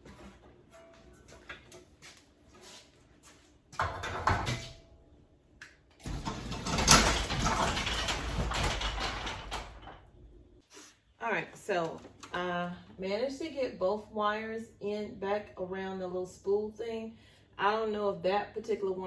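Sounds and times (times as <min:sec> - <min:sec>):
garage door rattling: 0:03.8 - 0:04.8, 0:06.0 - 0:10.5.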